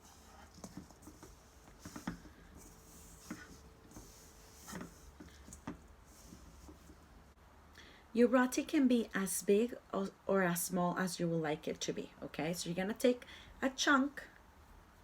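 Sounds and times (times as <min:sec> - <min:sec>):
hands kneading dough in a bowl: 0:00.0 - 0:07.4.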